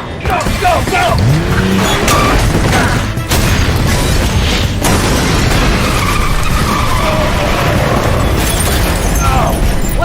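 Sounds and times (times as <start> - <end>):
cars driven hard: 0.2 - 9.1
tyres skidding: 0.2 - 10.0
long tyre squeal: 5.8 - 8.2.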